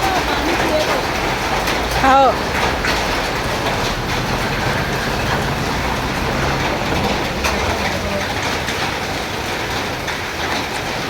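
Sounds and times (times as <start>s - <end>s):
hailstones striking: 0.0s - 11.0s
heavy rain hissing: 0.0s - 11.0s.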